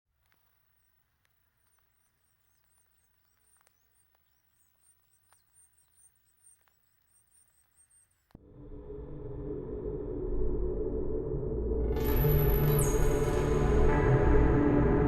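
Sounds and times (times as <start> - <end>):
faint clicks: 0.2 - 8.4
small bird high chirps: 1.6 - 8.3.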